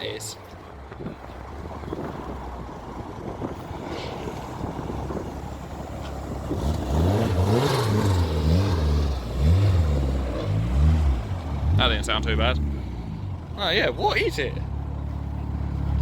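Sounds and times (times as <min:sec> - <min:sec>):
car engine revving: 0:04.7 - 0:16.0.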